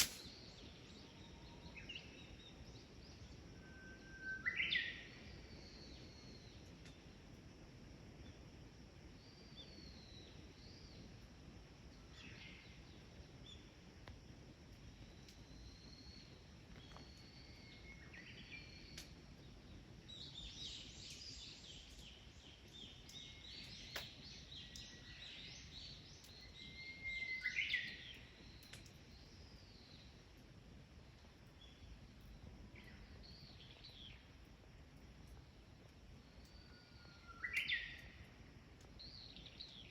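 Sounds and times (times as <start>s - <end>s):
faint sharp ticks: 23.1s - 24.9s, 28.6s - 29.0s
birds whistling and chirping: 26.3s - 28.3s, 36.5s - 38.2s.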